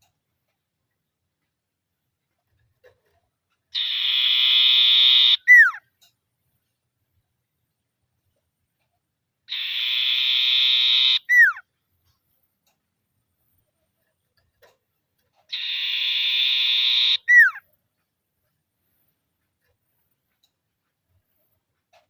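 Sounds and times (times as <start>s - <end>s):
bird trilling call with whistle: 3.8s - 5.8s, 9.5s - 11.6s, 15.5s - 17.6s.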